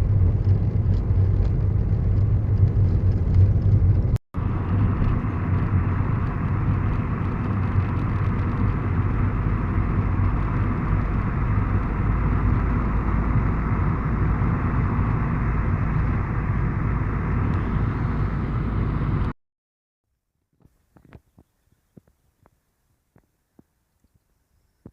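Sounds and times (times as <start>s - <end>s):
vehicle rumbling on the move: 0.0s - 19.4s.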